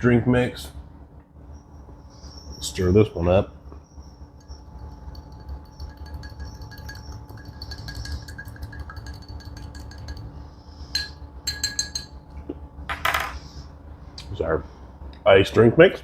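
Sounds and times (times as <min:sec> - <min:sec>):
ringing taps on cup: 0:04.4 - 0:10.4, 0:11.0 - 0:12.2
spoon clinking in cup: 0:04.4 - 0:12.3.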